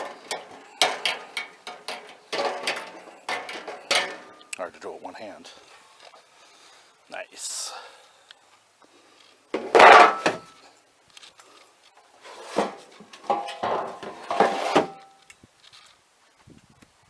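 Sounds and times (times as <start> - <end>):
wooden parts knocking: 0.0 - 4.6, 9.6 - 10.5.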